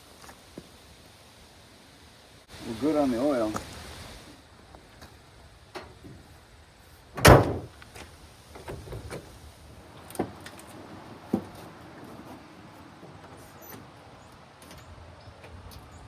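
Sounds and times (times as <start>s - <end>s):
metal panel slamming shut: 7.2s - 7.7s.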